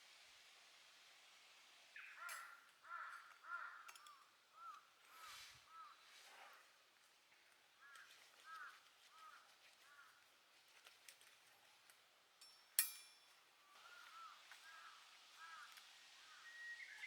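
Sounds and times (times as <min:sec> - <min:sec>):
faint bird calls: 0:02.0 - 0:06.7, 0:07.8 - 0:10.2, 0:13.6 - 0:17.0.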